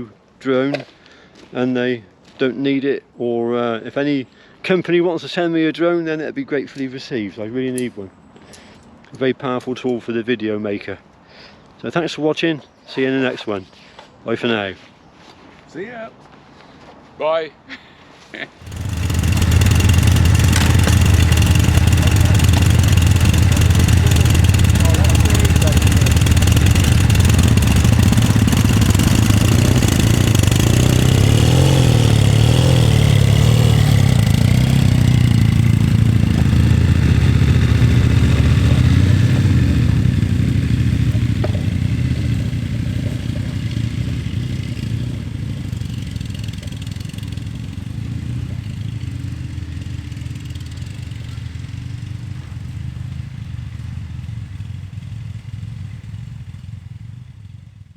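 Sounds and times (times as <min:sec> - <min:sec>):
motorcycle engines revving: 0:18.6 - 0:57.8.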